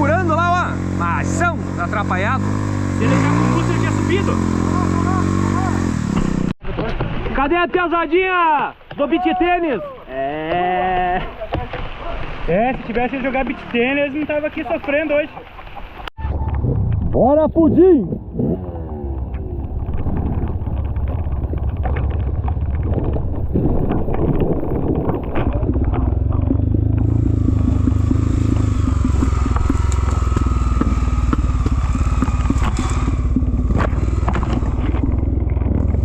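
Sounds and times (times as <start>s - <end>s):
motorcycle engine running hard: 0.0s - 6.6s, 18.0s - 23.6s, 25.4s - 36.0s.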